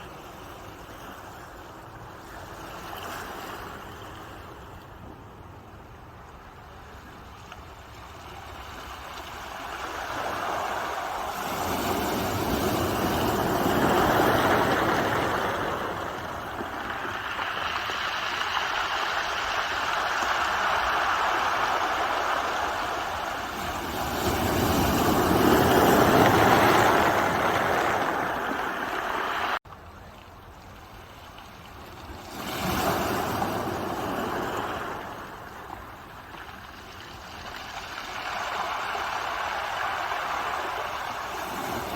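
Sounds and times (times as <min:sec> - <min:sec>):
ocean waves surging on shore: 0:08.0 - 0:29.6, 0:32.0 - 0:41.9.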